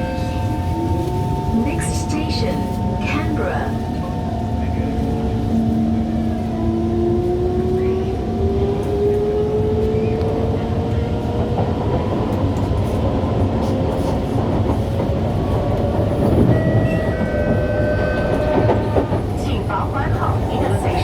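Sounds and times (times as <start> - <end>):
wheels rumbling on track: 0.0 - 21.0
train traction motors whining: 14.8 - 21.0.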